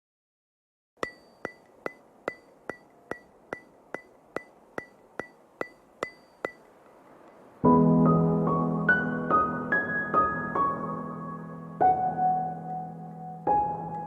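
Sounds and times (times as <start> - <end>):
sharp ringing ticks: 1.0 - 7.5.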